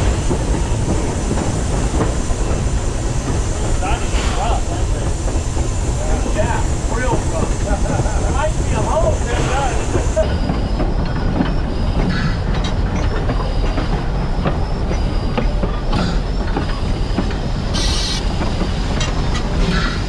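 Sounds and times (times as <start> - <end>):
steam hiss: 0.0 - 10.2, 16.0 - 20.0
train wheels rumbling and clattering: 0.0 - 20.0.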